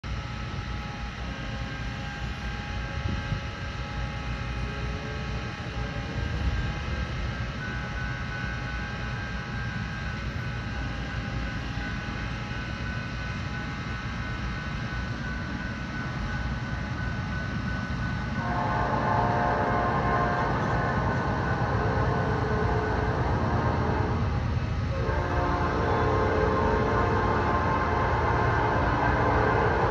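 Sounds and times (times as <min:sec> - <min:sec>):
diesel locomotive rumble: 0:00.0 - 0:29.9
steady high tones: 0:13.0 - 0:29.9.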